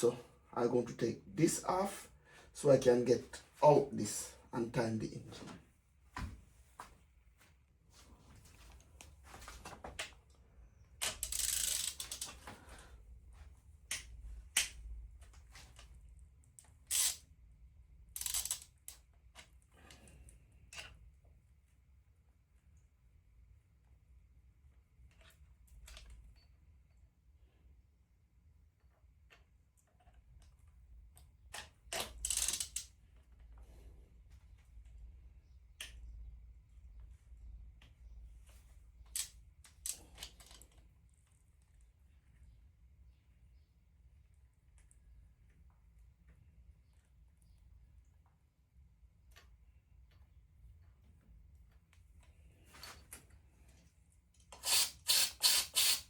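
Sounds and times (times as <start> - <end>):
short hissing bursts: 54.6 - 56.0.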